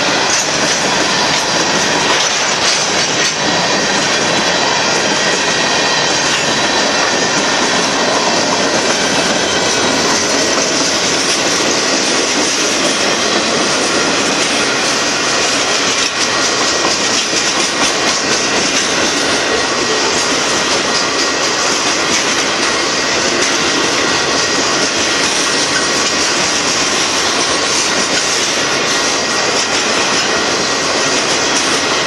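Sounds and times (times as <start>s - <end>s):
freight train wheels rushing on rail: 0.0s - 32.0s.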